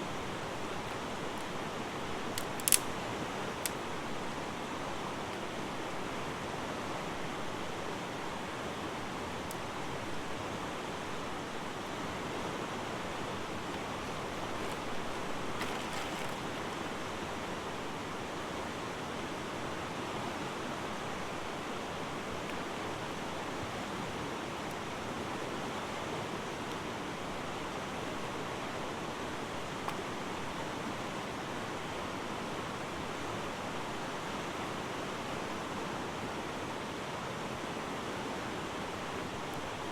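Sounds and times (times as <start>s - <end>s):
faint ticks: 2.3s - 2.9s.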